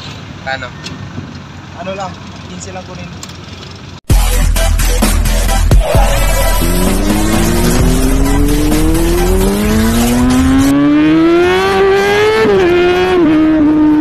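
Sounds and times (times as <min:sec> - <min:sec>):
car engine revving: 0:04.5 - 0:14.0
rushing tyre noise: 0:05.7 - 0:14.0.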